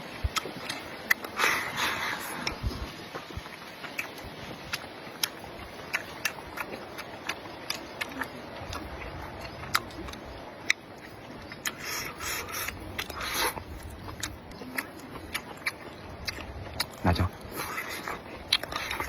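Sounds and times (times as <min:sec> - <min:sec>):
chewing mouth clicks and smacks: 0:00.2 - 0:02.7, 0:03.4 - 0:19.0
slurping: 0:00.3 - 0:03.0, 0:11.0 - 0:19.0.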